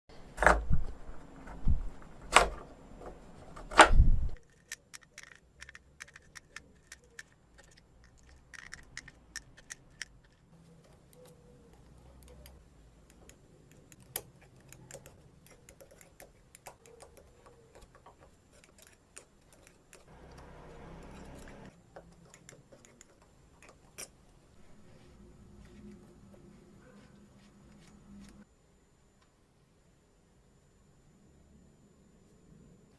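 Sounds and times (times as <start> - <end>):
metal parts clicking and clinking: 4.4 - 11.3, 13.2 - 20.4.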